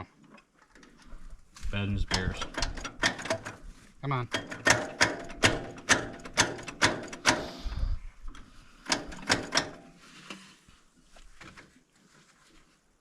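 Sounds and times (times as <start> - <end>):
sharp metallic knocks: 4.3 - 7.6, 8.9 - 10.0.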